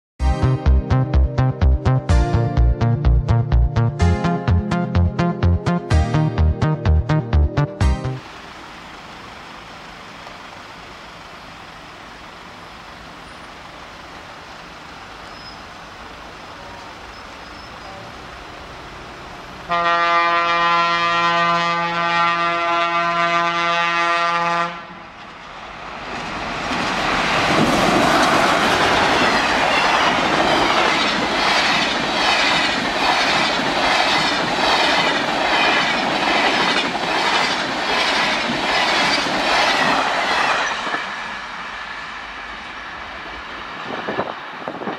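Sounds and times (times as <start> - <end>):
train rushing past: 7.8 - 44.9
locomotive horn blast: 19.7 - 25.0.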